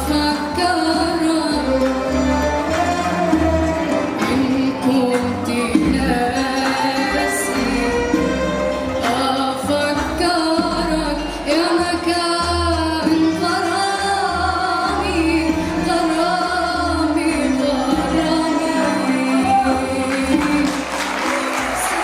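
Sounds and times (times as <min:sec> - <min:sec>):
instrumental ensemble with bass: 0:00.0 - 0:22.0
choir singing: 0:01.0 - 0:09.4, 0:13.6 - 0:22.0.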